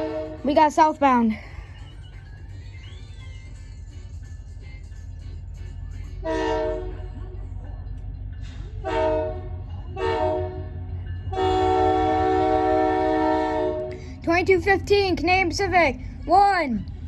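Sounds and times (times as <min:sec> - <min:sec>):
locomotive air horn blasts: 0:00.0 - 0:00.5, 0:06.2 - 0:07.1, 0:08.8 - 0:10.7, 0:11.3 - 0:14.2
train rumble: 0:00.0 - 0:17.0.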